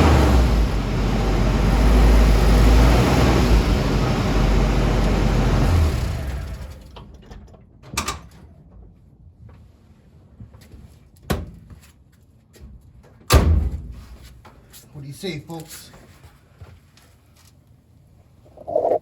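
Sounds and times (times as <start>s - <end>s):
pickup truck engine rumble: 0.0s - 7.3s.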